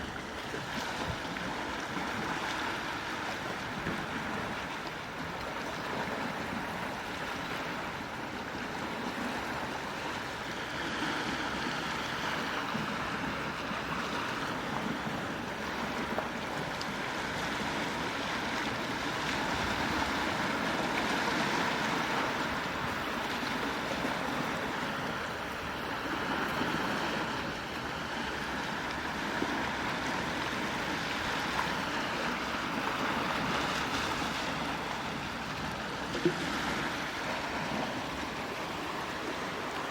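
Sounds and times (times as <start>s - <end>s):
gentle sea waves washing: 0.0s - 39.9s.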